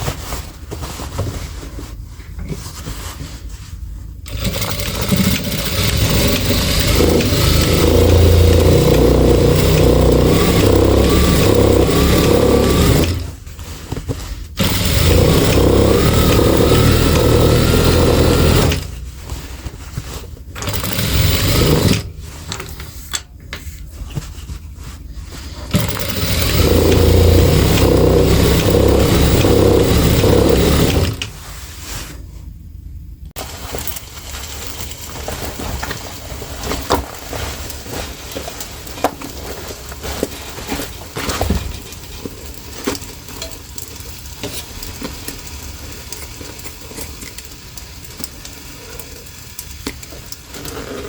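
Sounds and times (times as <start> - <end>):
sewing machine stitching: 4.3 - 13.4, 14.6 - 19.0, 20.6 - 22.8, 25.7 - 31.4.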